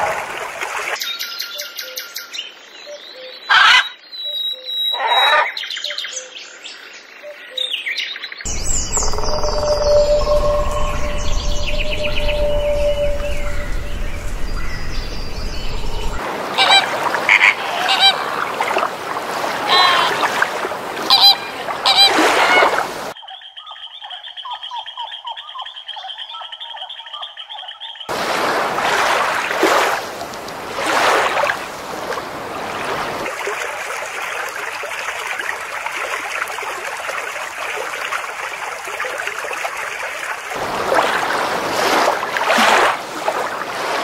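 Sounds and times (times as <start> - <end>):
small birds chirping: 8.5 - 16.2
flamingo honking: 8.7 - 18.4, 19.6 - 20.4, 21.0 - 22.9.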